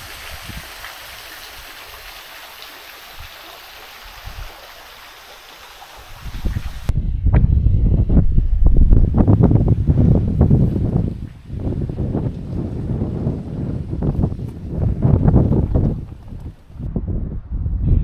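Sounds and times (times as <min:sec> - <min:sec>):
wind buffeting microphone: 0:00.0 - 0:02.1, 0:04.0 - 0:04.6, 0:06.0 - 0:18.0
stream water running: 0:00.0 - 0:06.9, 0:10.4 - 0:16.9.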